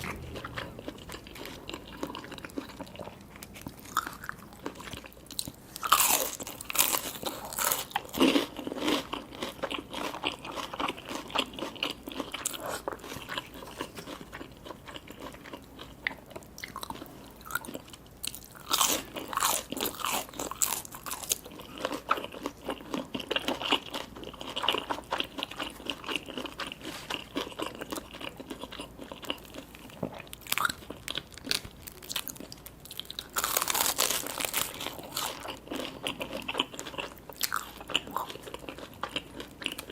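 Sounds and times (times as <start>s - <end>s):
wet crackling chewing: 0.0s - 39.9s
crisp bites of crunchy food: 29.2s - 39.9s.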